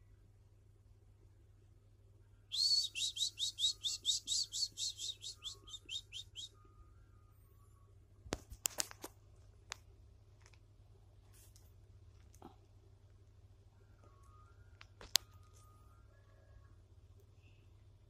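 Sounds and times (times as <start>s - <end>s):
bird chirping: 2.5s - 6.8s.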